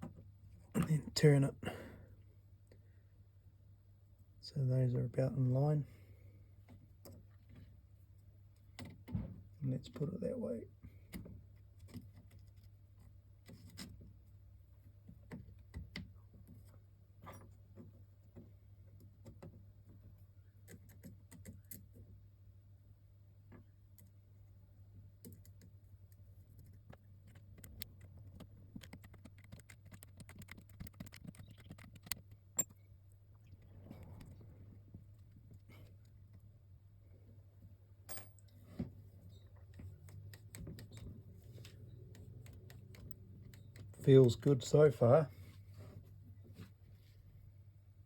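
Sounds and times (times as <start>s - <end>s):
small parts clicking and tapping: 25.2s - 33.6s, 38.1s - 44.2s
steady low hum: 32.3s - 45.4s.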